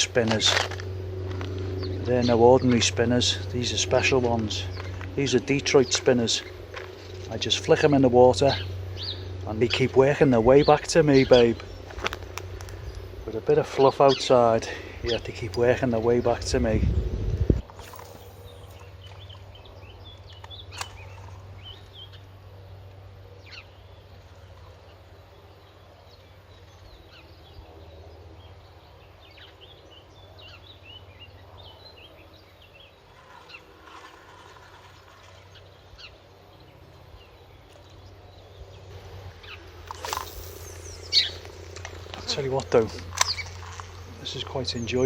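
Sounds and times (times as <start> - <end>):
steady low rumble: 0.0 - 23.4, 37.1 - 45.0
small birds chirping: 0.0 - 45.0
sharp click: 39.8 - 43.7.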